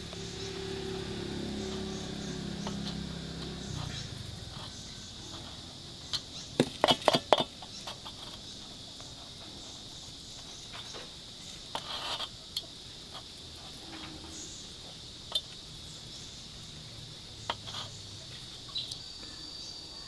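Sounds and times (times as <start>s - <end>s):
insects chirring: 0.0s - 20.0s
sharp knocks: 6.6s - 7.6s.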